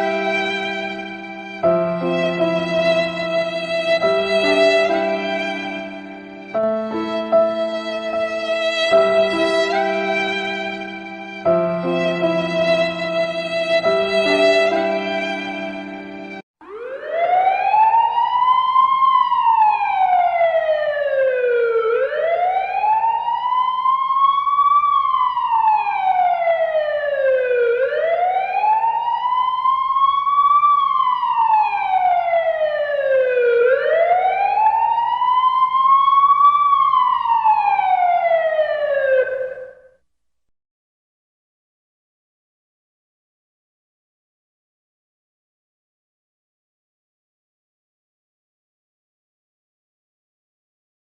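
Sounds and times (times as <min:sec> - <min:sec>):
wailing siren: 0:00.0 - 0:40.0.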